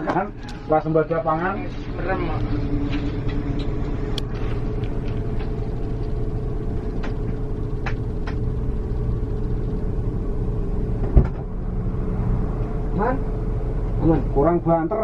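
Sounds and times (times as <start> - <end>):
bus engine and road rumble: 0.0 - 15.0
sharp thump: 11.0 - 11.5.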